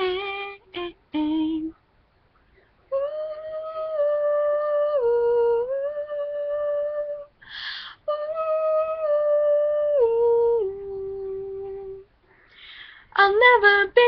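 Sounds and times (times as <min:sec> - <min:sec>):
woman humming a melody: 0:02.9 - 0:07.3, 0:08.0 - 0:12.1
quick breath in: 0:07.4 - 0:08.0, 0:12.3 - 0:13.1.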